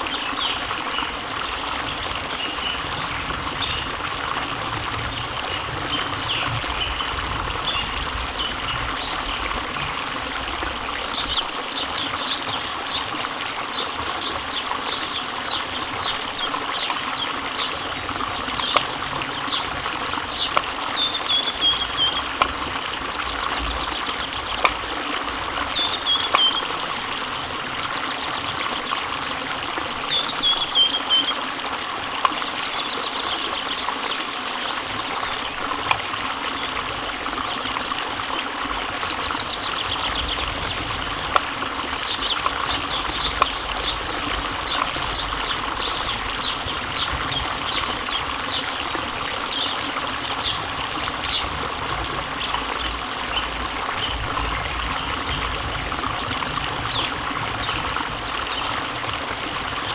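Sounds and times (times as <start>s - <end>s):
running water: 0.0s - 59.9s
bird-like chirps and trills: 11.0s - 27.2s, 27.8s - 31.5s, 32.4s - 35.9s, 39.0s - 51.6s.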